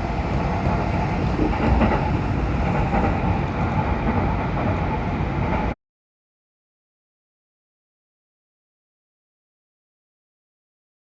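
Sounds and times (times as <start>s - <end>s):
train wheels rumbling on track: 0.0s - 5.8s.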